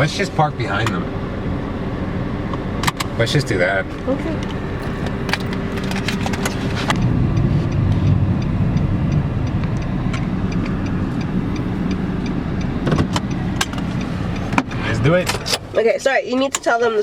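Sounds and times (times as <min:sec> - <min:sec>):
car engine and tyre rumble: 0:00.0 - 0:17.0
sharp clicks: 0:04.5 - 0:15.7.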